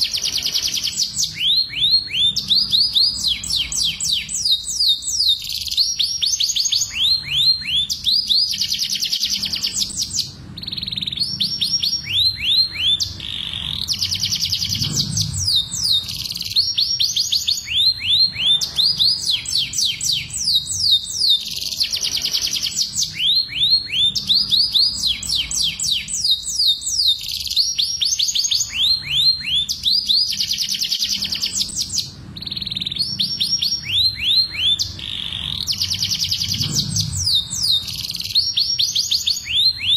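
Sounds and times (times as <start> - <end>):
canaries singing trills: 0.0 - 39.9.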